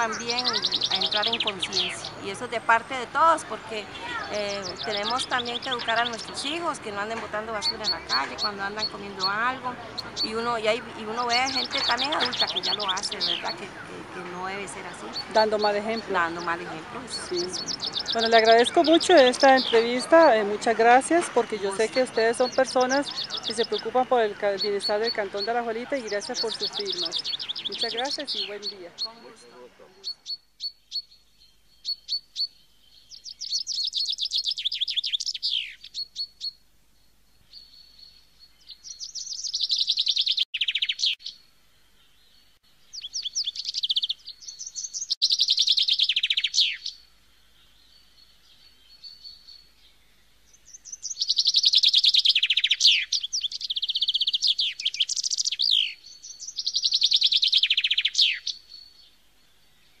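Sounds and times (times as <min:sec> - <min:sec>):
birds chirping: 0:00.0 - 1:00.0.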